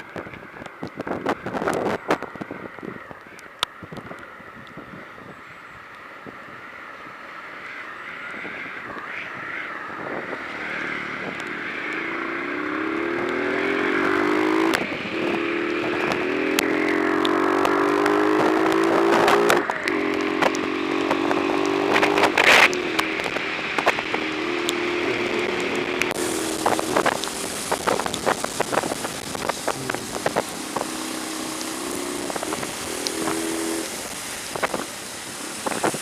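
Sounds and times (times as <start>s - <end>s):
sharp clicks and crackles: 0.0s - 4.9s, 8.9s - 34.9s
wind noise on microphone: 0.0s - 6.7s, 8.2s - 36.0s
vehicle engine accelerating: 10.2s - 34.8s.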